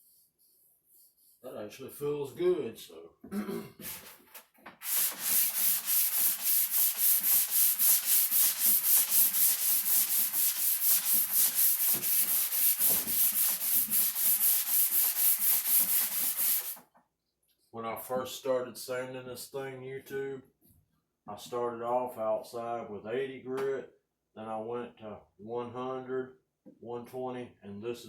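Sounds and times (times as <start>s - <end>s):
sandpaper rasping on wood: 4.8s - 16.8s.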